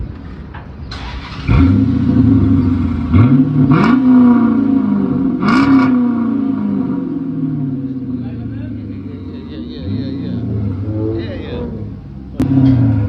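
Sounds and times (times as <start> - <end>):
starter cranking engine: 0.9 - 1.6
car engine revving: 1.0 - 13.0.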